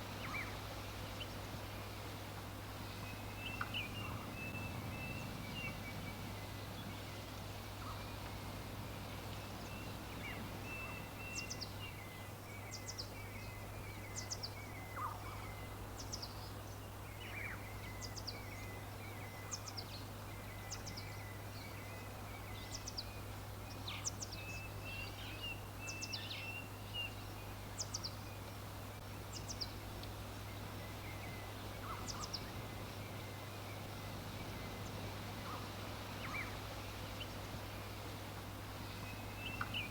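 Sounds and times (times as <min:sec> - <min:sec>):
birds chirping: 0:24.2 - 0:38.0.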